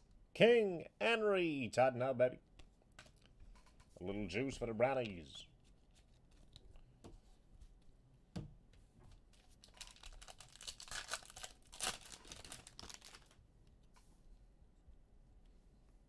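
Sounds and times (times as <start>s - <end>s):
packaging crinkling and rustling: 9.1s - 13.4s.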